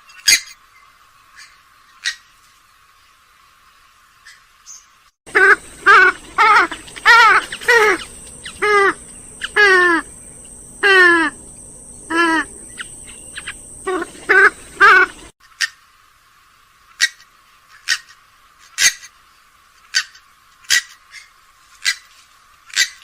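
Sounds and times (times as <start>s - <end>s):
swamphen harsh nasal calls: 5.3s - 15.8s.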